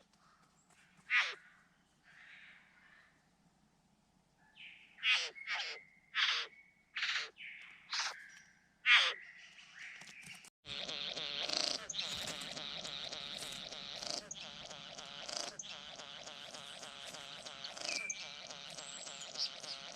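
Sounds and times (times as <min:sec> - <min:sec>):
busy bird chatter: 0:09.2 - 0:19.9
harsh bird calls: 0:10.7 - 0:19.9.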